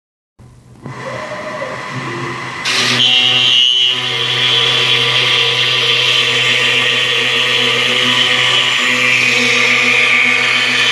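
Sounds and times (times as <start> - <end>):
high steady whine: 0.4 - 10.9
router spindle milling wood: 0.8 - 10.9.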